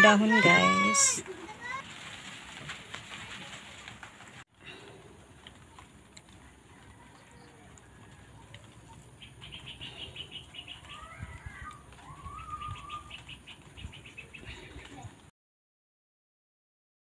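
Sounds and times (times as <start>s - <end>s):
bird chirps: 9.2s - 15.1s
rapid pulsing bird calls: 9.2s - 15.1s.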